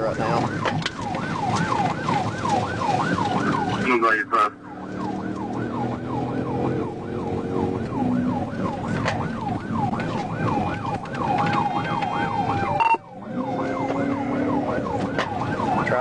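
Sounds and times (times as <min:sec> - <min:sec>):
car engine and road noise: 0:00.0 - 0:16.0
police siren yelping: 0:00.0 - 0:16.0.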